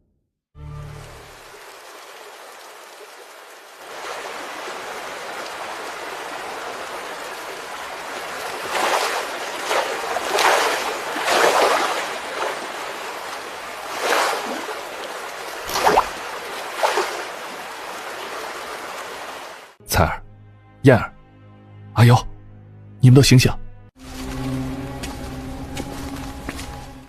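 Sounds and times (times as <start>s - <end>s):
rushing water with surges: 0.8s - 19.8s.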